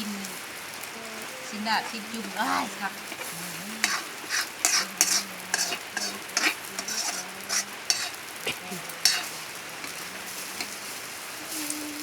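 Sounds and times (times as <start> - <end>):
egg sizzling in a pan: 0.0 - 12.0
metal spatula scraping a pan: 1.7 - 11.2.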